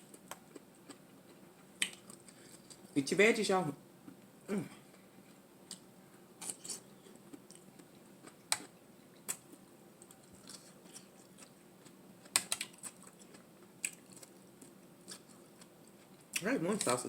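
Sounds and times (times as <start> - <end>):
person chewing: 0.1 - 2.9, 4.7 - 17.0
mouth clicks and smacks: 1.8 - 2.8.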